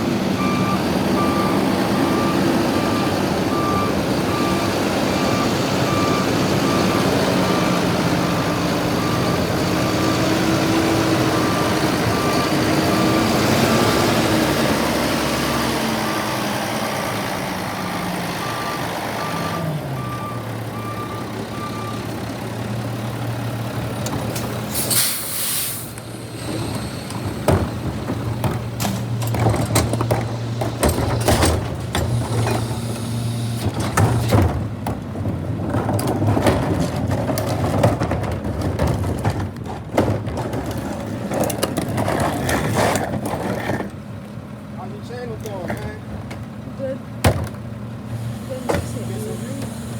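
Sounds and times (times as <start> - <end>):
diesel engine idling: 0.0 - 33.7, 43.9 - 49.9
reversing alarm beeping: 0.4 - 15.9, 18.3 - 22.2
air brake hiss: 24.7 - 26.0
knocks and clatter: 26.4 - 32.8, 33.6 - 44.1, 47.2 - 47.7.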